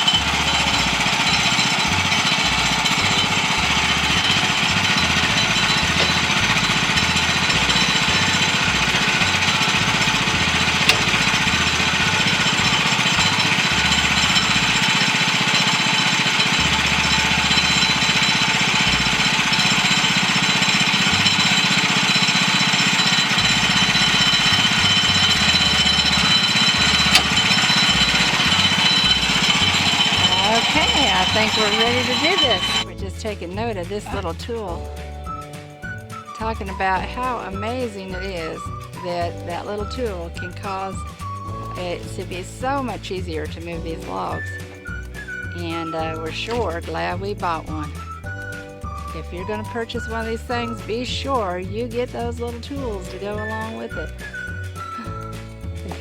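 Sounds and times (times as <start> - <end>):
sawmill engine running: 0.0 - 35.1.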